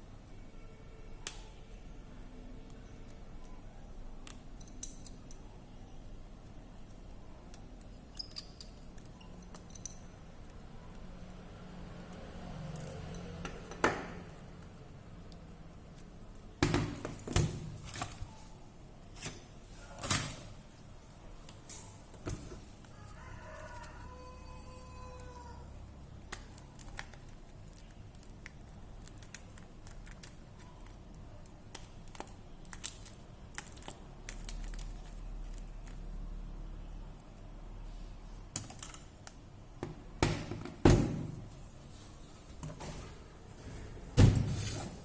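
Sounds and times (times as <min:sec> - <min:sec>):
rooster crowing: 0:22.9 - 0:25.8.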